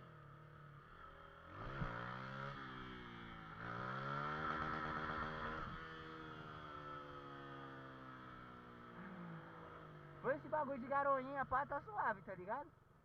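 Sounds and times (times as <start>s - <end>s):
motorcycle engine accelerating: 0.0s - 10.5s.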